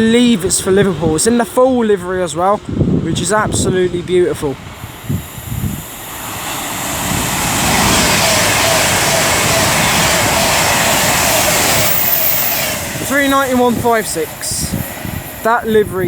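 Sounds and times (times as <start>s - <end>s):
train passing at speed: 4.3s - 16.0s.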